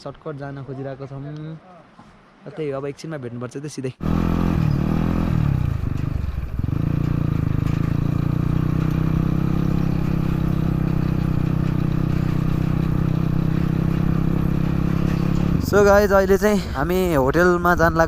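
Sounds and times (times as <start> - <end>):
dirt bike engine running: 4.0 - 18.0.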